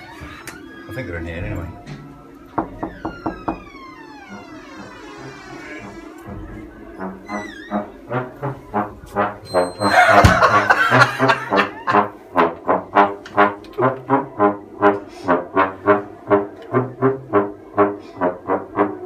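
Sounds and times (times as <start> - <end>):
brass band playing short notes: 4.3 - 19.0.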